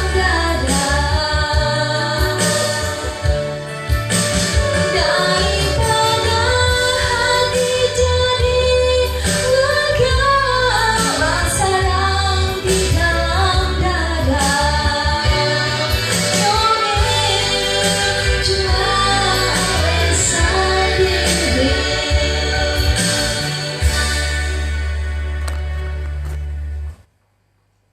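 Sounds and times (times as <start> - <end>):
woman singing pop song: 0.0 - 24.2
backing track with bass and drums: 0.0 - 27.0.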